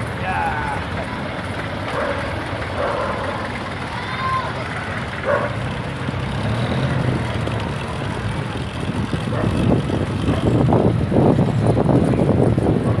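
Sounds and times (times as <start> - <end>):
low rumble of bicycle riding: 0.0 - 13.0
wind buffeting microphone: 4.9 - 13.0.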